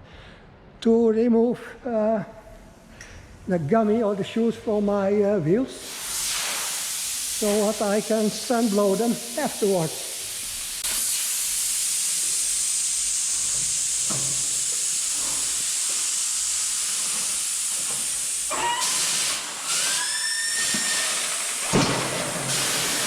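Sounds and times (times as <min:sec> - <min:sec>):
air hissing: 0:05.7 - 0:23.0.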